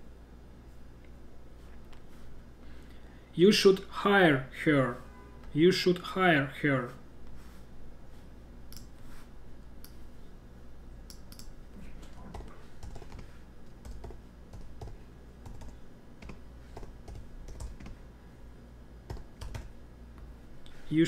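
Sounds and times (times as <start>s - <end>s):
computer keyboard typing: 12.1s - 18.0s, 19.1s - 19.7s.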